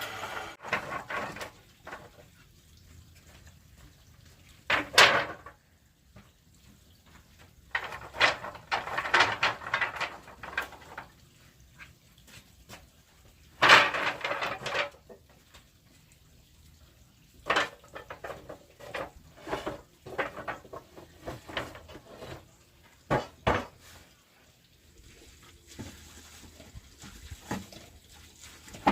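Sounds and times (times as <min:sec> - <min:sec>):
wood knocking and clattering: 0:00.6 - 0:02.2, 0:04.7 - 0:05.6, 0:07.7 - 0:11.1, 0:13.6 - 0:15.2, 0:17.4 - 0:23.8.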